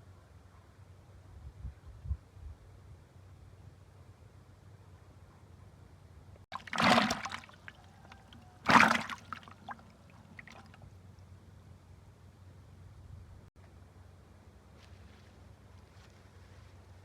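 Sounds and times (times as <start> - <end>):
water splashing: 6.5 - 10.8
water dripping: 6.6 - 10.8.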